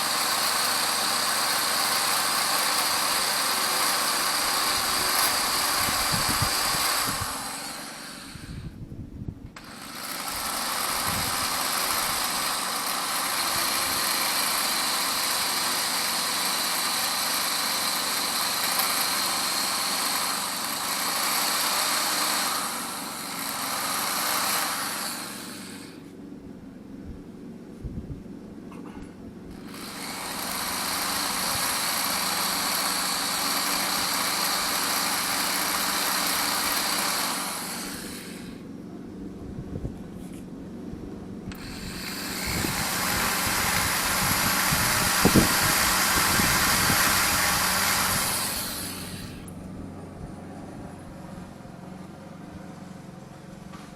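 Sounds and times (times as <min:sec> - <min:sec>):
rotary grinding tool whine: 0:00.0 - 0:08.8, 0:09.5 - 0:26.4, 0:29.4 - 0:53.9
compressed air hissing: 0:41.5 - 0:49.5.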